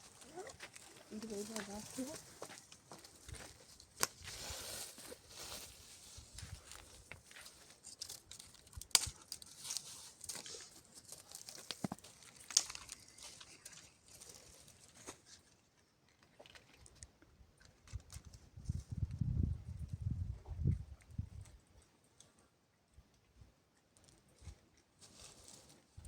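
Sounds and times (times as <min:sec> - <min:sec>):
dry brushwood crackling and snapping: 0:00.0 - 0:04.3, 0:06.3 - 0:15.2.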